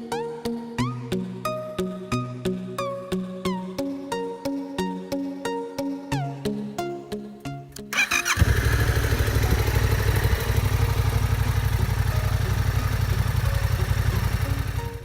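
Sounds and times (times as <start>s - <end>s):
background music: 0.0s - 15.0s
motorcycle electric starter cranking: 8.0s - 15.0s
motorcycle engine idling: 8.0s - 15.0s.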